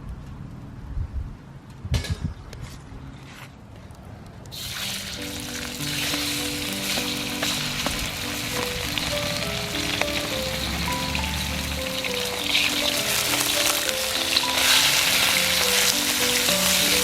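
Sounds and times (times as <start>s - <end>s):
food sizzling in a pan: 4.6s - 17.0s
soft background music: 4.6s - 17.0s.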